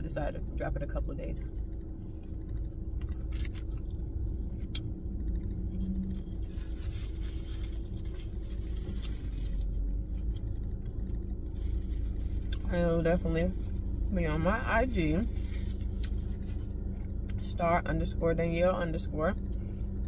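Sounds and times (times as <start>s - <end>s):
car cabin rumble: 0.0s - 20.0s
person chewing: 2.2s - 12.6s.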